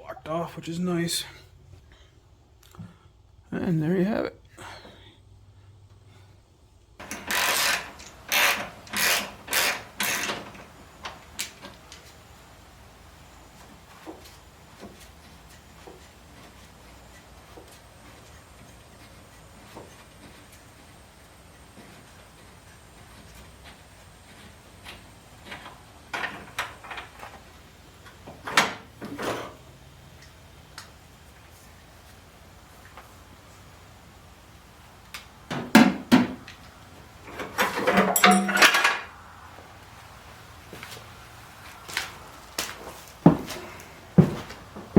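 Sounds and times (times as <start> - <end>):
hand tool rasping on engine: 7.0 - 10.6
tools knocking and clinking: 35.5 - 36.6, 37.3 - 39.1.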